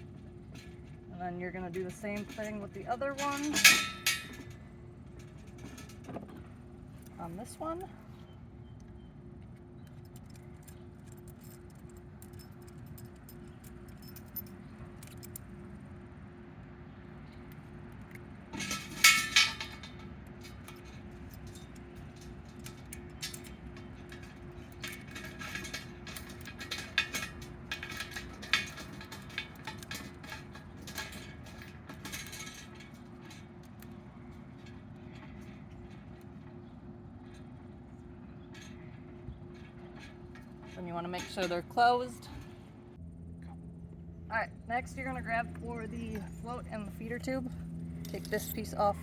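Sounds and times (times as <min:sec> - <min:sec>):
metal parts clinking: 0:01.6 - 0:07.8, 0:09.8 - 0:15.5, 0:17.5 - 0:37.6, 0:46.0 - 0:49.0.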